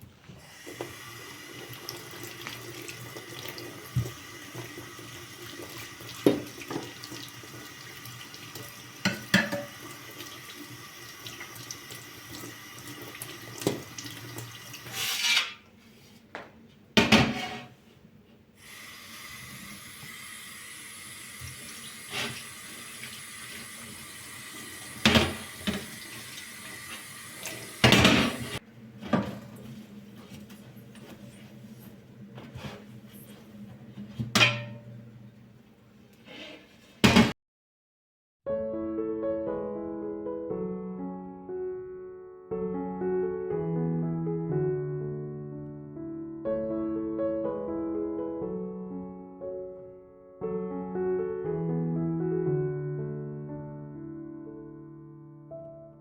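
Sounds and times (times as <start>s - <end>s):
tap water running into sink: 0.5s - 15.0s, 18.6s - 28.6s
dishes and pots clinking: 9.0s - 9.8s, 27.5s - 29.6s, 34.2s - 35.0s.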